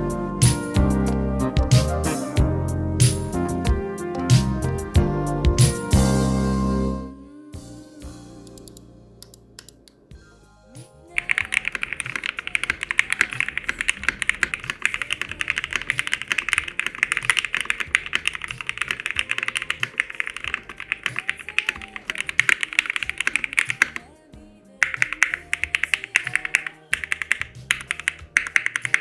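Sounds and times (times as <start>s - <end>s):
faint background music: 0.0s - 29.0s
mechanical keyboard key clacks: 8.5s - 9.9s, 11.2s - 24.0s, 24.8s - 29.0s.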